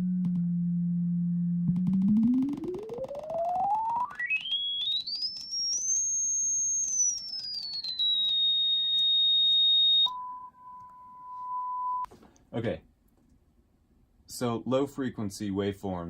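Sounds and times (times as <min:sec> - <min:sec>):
sine wave tone sweeping: 0:00.0 - 0:12.1.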